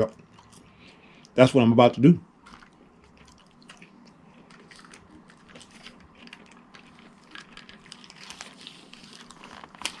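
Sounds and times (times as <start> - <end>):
food packaging crackling and rustling: 2.4 - 10.0.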